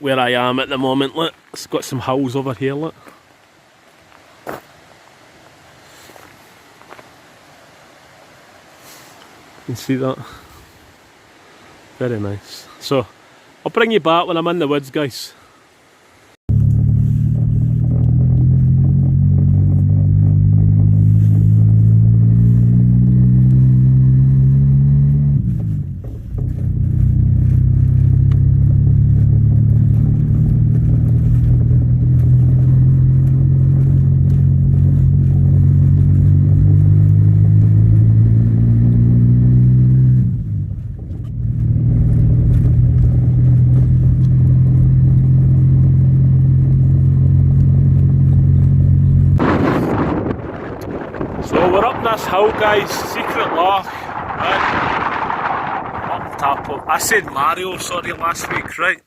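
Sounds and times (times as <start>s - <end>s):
car engine accelerating: 16.5s - 58.0s.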